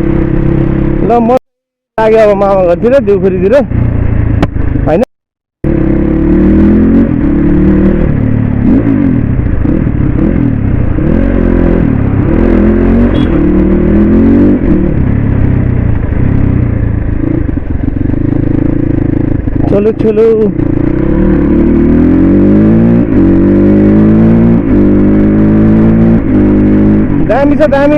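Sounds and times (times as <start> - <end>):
motocross bike engine revving: 5.7 - 15.0, 17.2 - 27.9.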